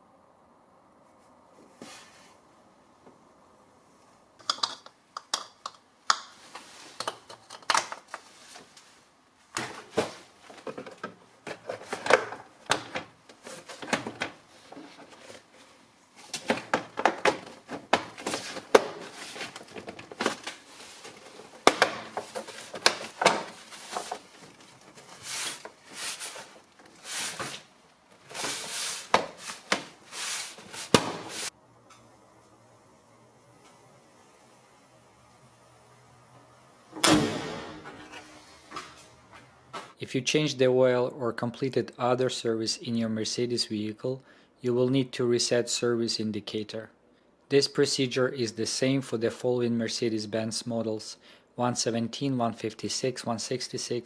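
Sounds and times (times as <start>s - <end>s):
clicks taps and knocks: 4.4s - 6.3s.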